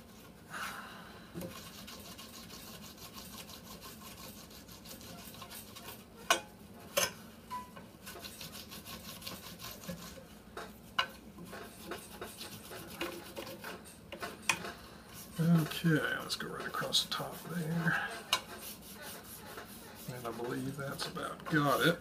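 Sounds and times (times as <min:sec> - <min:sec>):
rubber block rubbing on wood: 0:08.0 - 0:10.2, 0:11.5 - 0:13.9, 0:16.7 - 0:21.9.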